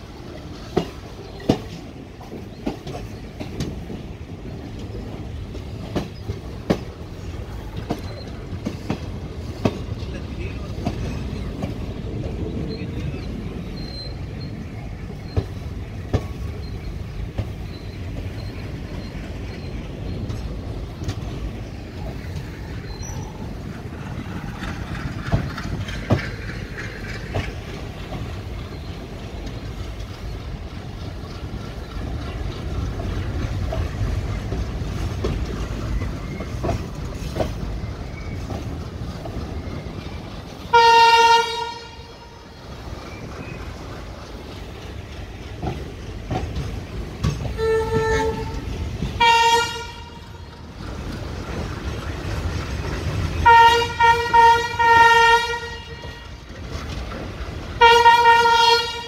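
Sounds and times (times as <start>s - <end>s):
train rumble: 0.0s - 59.0s
wheels clicking over rail joints: 0.0s - 59.0s
train horn blast: 40.7s - 42.4s, 47.5s - 50.4s, 53.4s - 56.4s, 57.8s - 59.0s.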